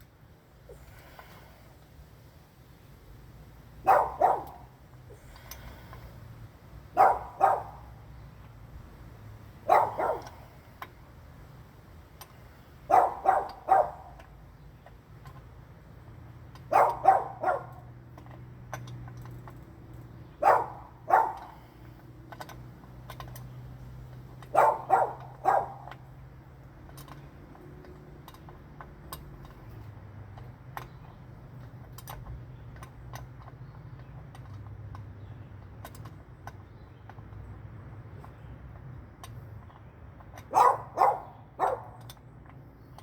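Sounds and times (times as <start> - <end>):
dog barking: 3.8 - 4.7, 7.0 - 7.8, 9.7 - 10.4, 12.9 - 14.1, 16.7 - 17.8, 20.4 - 21.5, 24.5 - 25.9, 40.5 - 42.0.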